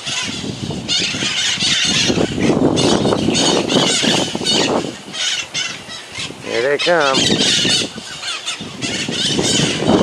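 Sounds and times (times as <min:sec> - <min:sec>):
parrots screeching and squawking: 0:00.0 - 0:10.0.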